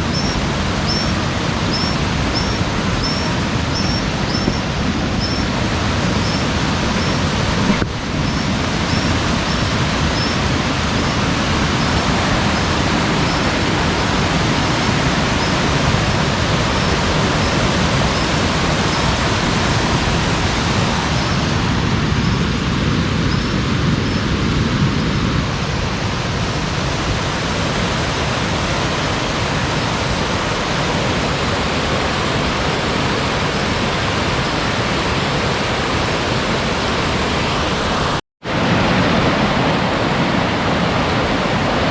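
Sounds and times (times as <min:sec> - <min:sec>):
waterfall rushing: 0:00.0 - 0:41.9
faint high chirp: 0:00.1 - 0:05.5, 0:06.2 - 0:07.2, 0:08.3 - 0:10.4.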